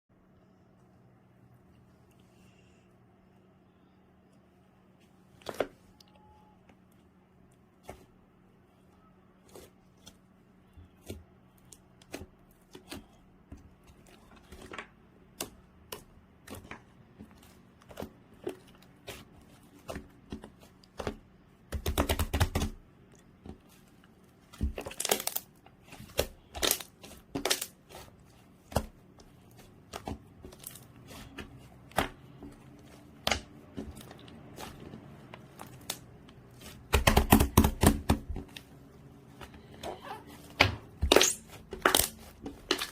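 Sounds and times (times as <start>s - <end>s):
slime clicking and crackling: 24.6s - 32.2s, 33.1s - 38.1s, 41.0s - 42.9s.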